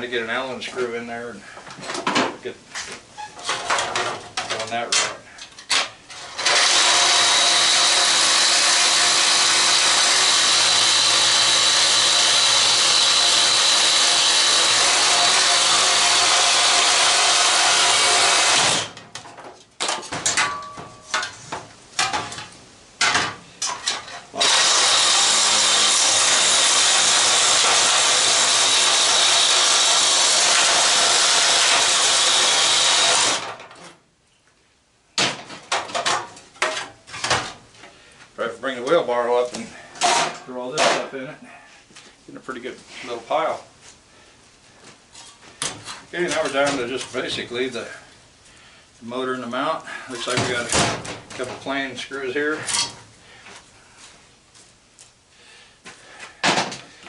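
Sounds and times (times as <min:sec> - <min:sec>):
knocks and clanks: 0:03.4 - 0:06.6, 0:18.5 - 0:24.3, 0:35.2 - 0:37.6, 0:56.4 - 0:56.9
reciprocating saw cutting metal: 0:06.2 - 0:19.0, 0:24.4 - 0:33.6.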